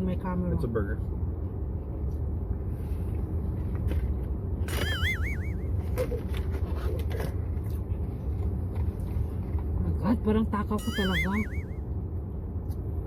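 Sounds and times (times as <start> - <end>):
warbling high-pitched squeal: 4.7 - 5.7, 10.8 - 11.8.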